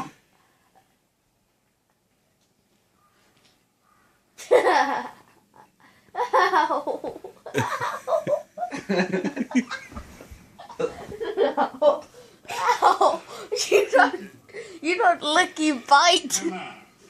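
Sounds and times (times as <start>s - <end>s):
person laughing hard: 6.2s - 9.8s.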